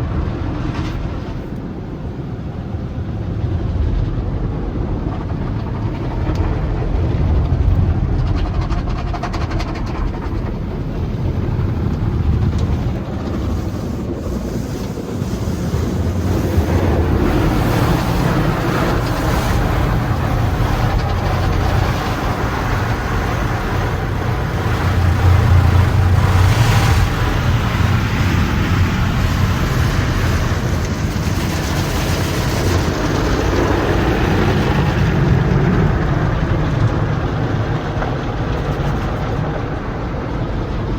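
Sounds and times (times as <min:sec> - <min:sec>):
car wash equipment rumbling: 0:00.0 - 0:40.9
water spraying against car: 0:08.9 - 0:35.2.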